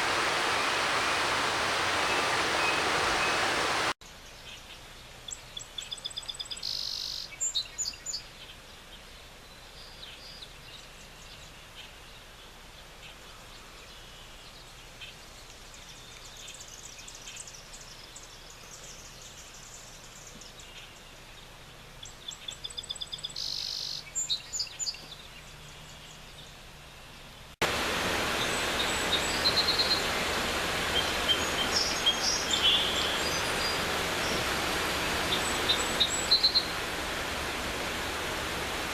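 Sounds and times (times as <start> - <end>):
rushing creek: 0.0 - 4.0, 27.6 - 38.9
faint steady hiss: 0.0 - 38.9
songbirds trilling and chirping: 9.5 - 38.9.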